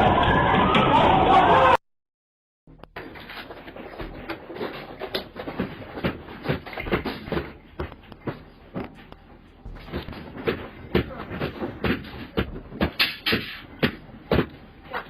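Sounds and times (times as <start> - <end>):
knocks thumps and clattering: 2.7 - 14.7.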